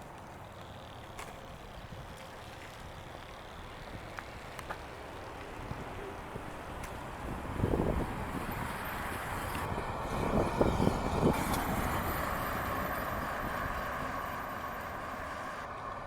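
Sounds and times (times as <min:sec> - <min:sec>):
wind buffeting microphone: 0:05.6 - 0:14.1.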